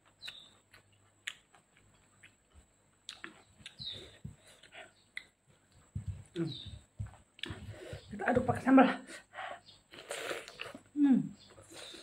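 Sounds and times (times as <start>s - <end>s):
bird chirping: 0.0s - 0.9s, 3.1s - 12.0s
wet chewing: 0.0s - 6.6s.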